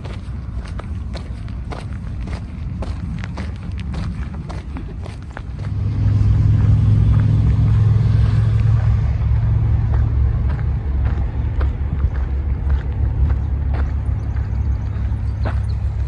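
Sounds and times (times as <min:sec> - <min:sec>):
footsteps on a trail: 0:00.0 - 0:06.2, 0:09.8 - 0:16.0
vehicle passing: 0:00.0 - 0:16.0.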